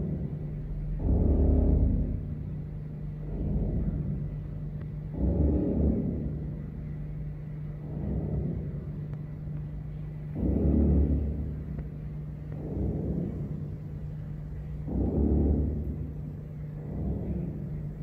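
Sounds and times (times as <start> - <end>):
fish drumming rumble: 0.0 - 18.0.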